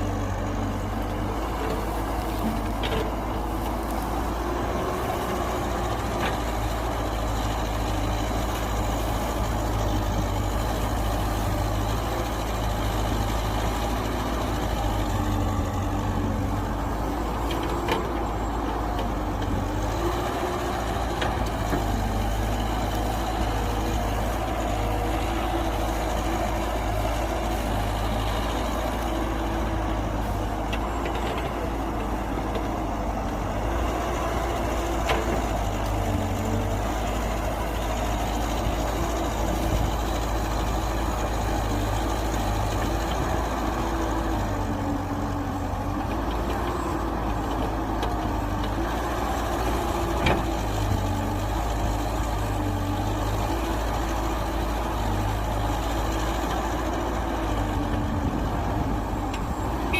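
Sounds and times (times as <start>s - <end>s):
heavy machinery engines rumbling: 0.0s - 59.9s.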